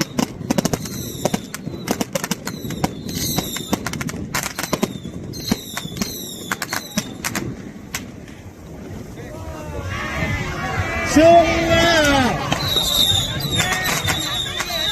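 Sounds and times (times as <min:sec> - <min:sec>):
firecrackers cracking: 0:00.0 - 0:09.9, 0:11.8 - 0:14.9.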